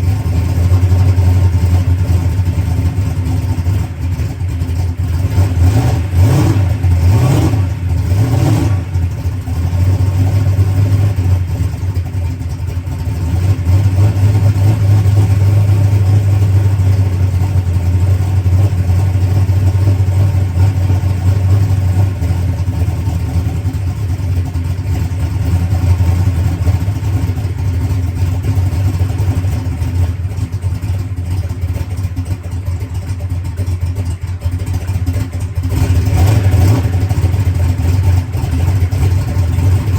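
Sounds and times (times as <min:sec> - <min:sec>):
race car engine idling: 0:00.0 - 0:39.9.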